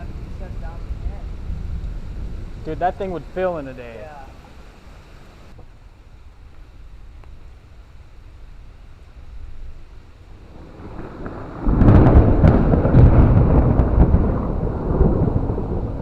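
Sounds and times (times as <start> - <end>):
thunder clap and rumble: 0.0 - 3.9, 10.3 - 16.0.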